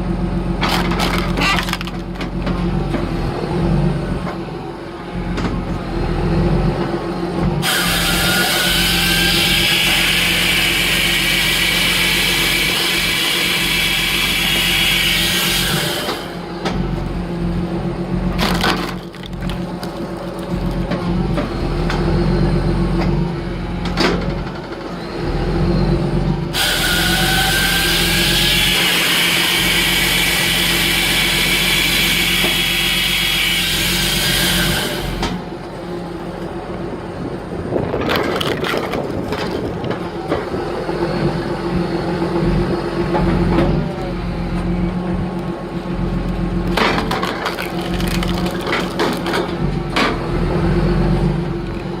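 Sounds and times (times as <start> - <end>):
tractor diesel engine running: 0.0 - 7.7, 8.8 - 52.0
wood cracking and splitting: 0.6 - 3.0, 18.3 - 21.6, 37.8 - 40.4, 46.6 - 49.6.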